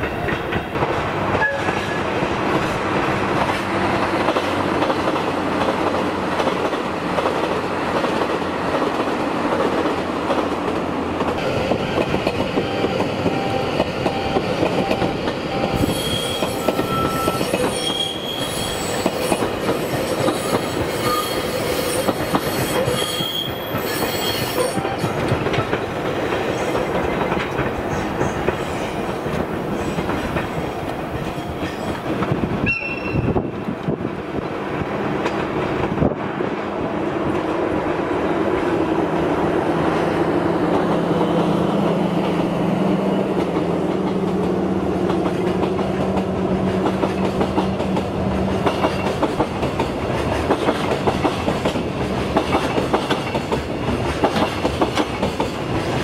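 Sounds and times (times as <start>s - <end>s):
train wheels clattering on rails: 0.0s - 37.5s, 39.9s - 56.0s
high wheel squeals: 15.6s - 25.1s.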